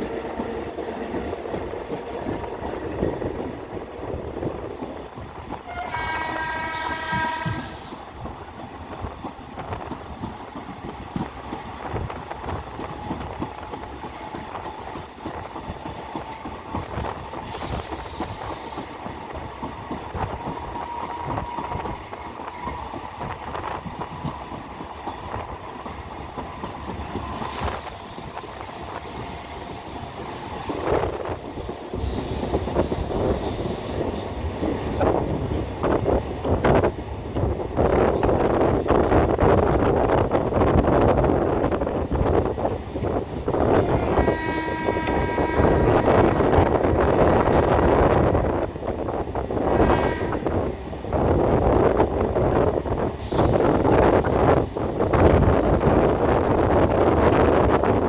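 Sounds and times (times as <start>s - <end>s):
train rumbling: 0.0s - 58.0s
train horn: 5.6s - 8.0s, 43.7s - 46.9s, 49.7s - 50.7s.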